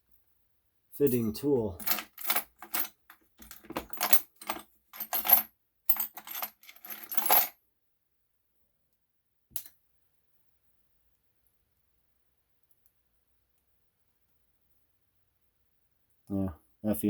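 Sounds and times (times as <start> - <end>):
metal tools clinking: 1.0 - 7.5.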